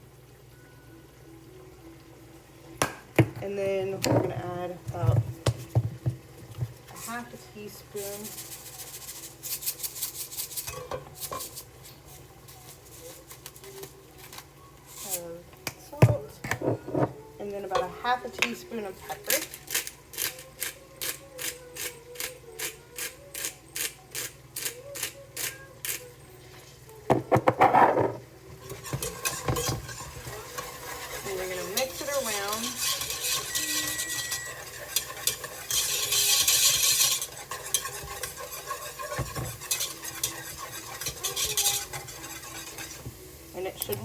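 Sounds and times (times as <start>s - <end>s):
sauce sizzling: 0.0s - 16.4s, 17.2s - 44.0s
utensil clinking against pot: 27.4s - 43.2s
loud utensil scrape: 27.6s - 43.2s.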